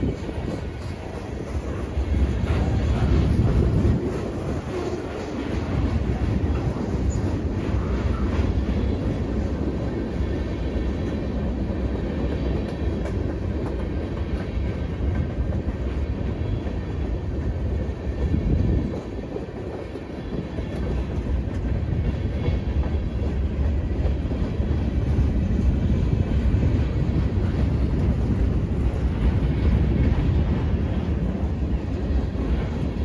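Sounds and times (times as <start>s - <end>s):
freight train rumbling past: 0.0s - 33.0s.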